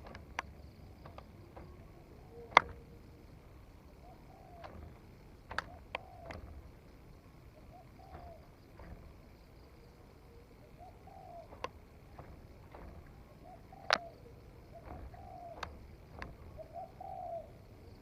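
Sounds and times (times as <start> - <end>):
dove cooing: 1.6 - 5.0, 5.6 - 6.6, 7.5 - 9.0, 10.2 - 11.8, 12.8 - 18.0.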